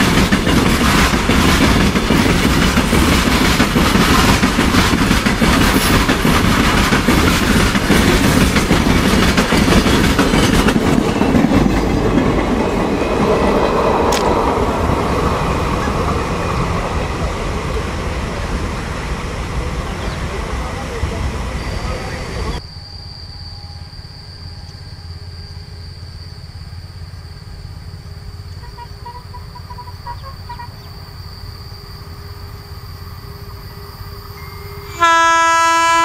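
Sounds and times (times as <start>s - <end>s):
wagon wheels clattering over rail joints: 0.0s - 13.5s.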